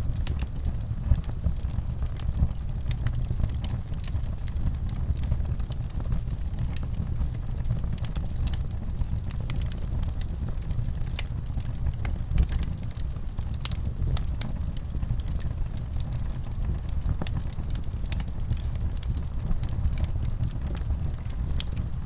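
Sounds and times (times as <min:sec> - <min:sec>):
fire crackling: 0:00.0 - 0:22.0
fire pops and snaps: 0:00.0 - 0:22.0.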